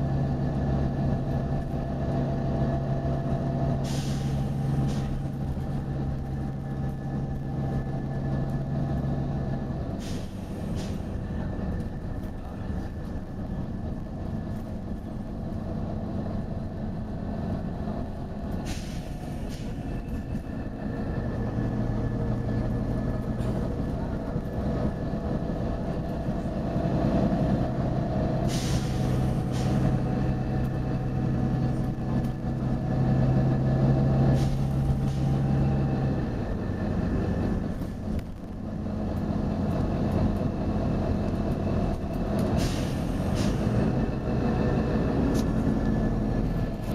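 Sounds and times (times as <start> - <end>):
bus diesel engine running: 0.0 - 46.9
compressed-air hiss: 28.5 - 29.7.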